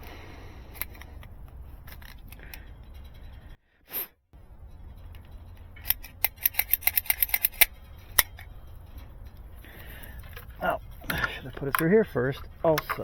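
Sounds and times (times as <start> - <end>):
sharp clicks: 5.1 - 13.0.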